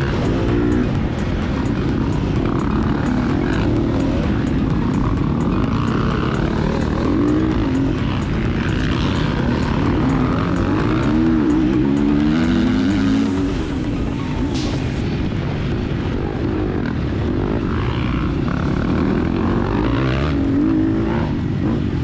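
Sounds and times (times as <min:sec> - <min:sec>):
dirt bike engine revving: 0:00.0 - 0:15.0
rushing wind noise: 0:00.0 - 0:22.0.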